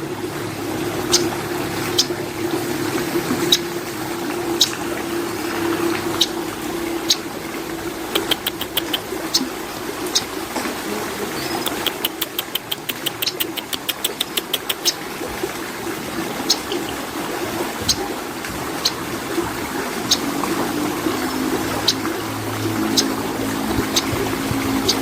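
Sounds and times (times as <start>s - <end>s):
steady low hum: 0.0s - 11.6s
bird high ticking calls: 0.8s - 10.4s, 11.4s - 15.1s, 16.4s - 17.1s, 17.8s - 19.1s, 20.0s - 20.4s, 21.2s - 25.0s.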